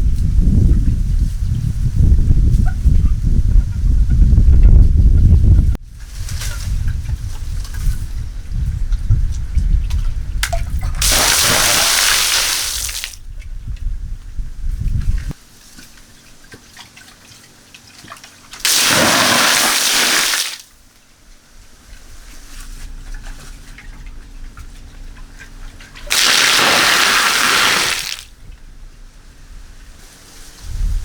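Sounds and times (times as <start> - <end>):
water gushing: 10.9 - 13.2, 18.6 - 20.6, 26.0 - 28.3.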